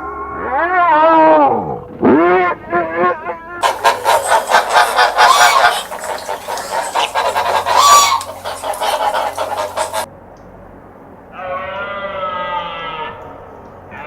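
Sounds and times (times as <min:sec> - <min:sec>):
birds honking and squawking: 0:03.6 - 0:10.1.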